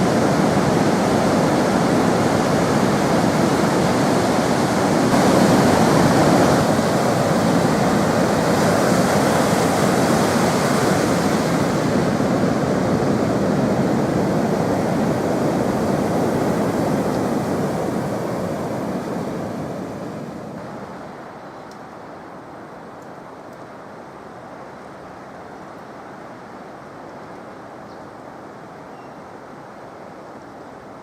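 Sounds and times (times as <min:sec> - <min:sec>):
wind noise on microphone: 0:00.0 - 0:21.3.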